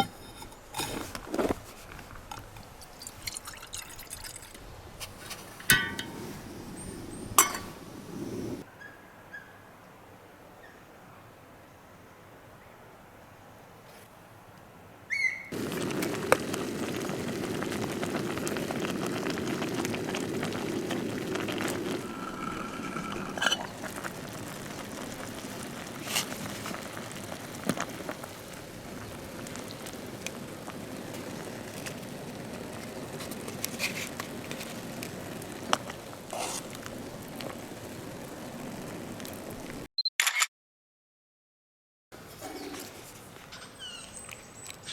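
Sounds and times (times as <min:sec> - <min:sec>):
fire crackles and pops: 0:00.0 - 0:08.6, 0:15.5 - 0:39.9
campfire rushing: 0:00.0 - 0:08.7, 0:15.5 - 0:39.9.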